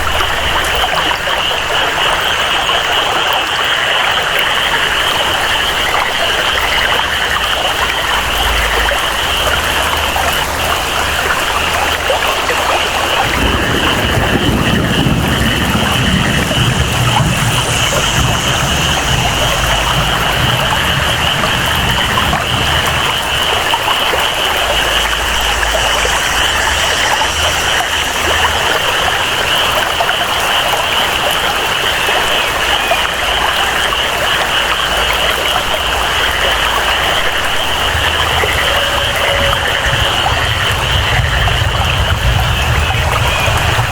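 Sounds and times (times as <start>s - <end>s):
flowing water: 0.0s - 43.9s
steady rainfall: 0.0s - 43.9s
high-pitched jungle chorus: 4.6s - 43.9s
low rumble: 4.9s - 30.8s, 36.0s - 43.9s.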